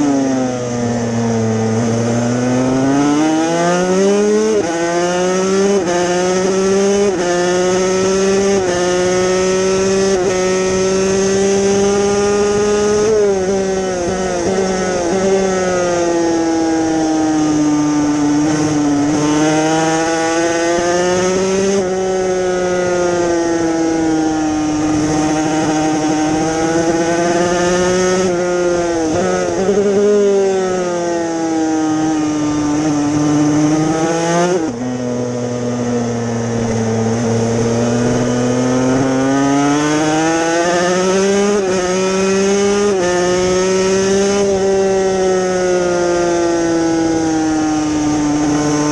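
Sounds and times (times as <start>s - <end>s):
two-stroke motorcycle engine revving: 0.0s - 48.9s.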